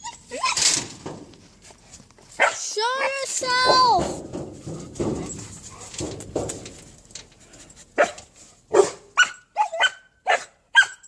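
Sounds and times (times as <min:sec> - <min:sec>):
rustling: 0:00.0 - 0:08.7
dog barking: 0:02.4 - 0:03.1, 0:08.0 - 0:11.0.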